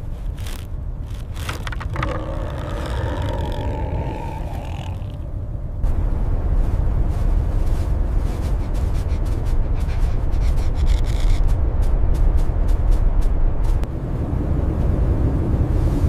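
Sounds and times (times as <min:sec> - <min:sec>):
blizzard wind rumble: 0:00.0 - 0:16.0.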